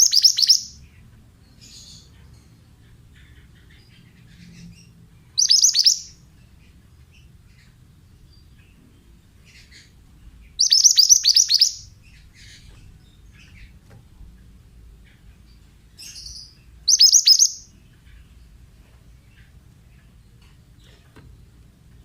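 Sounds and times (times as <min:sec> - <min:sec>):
faint bird chirps: 0:00.0 - 0:13.8, 0:15.0 - 0:18.6
bird singing high notes: 0:16.9 - 0:17.7.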